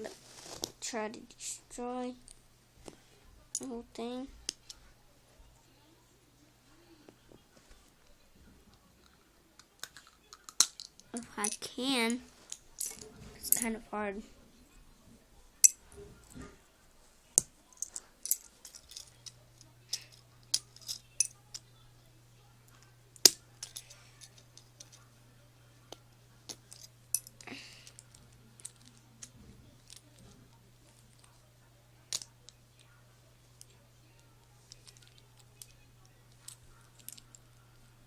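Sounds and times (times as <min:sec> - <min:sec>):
faint low hum: 0:00.0 - 0:38.0.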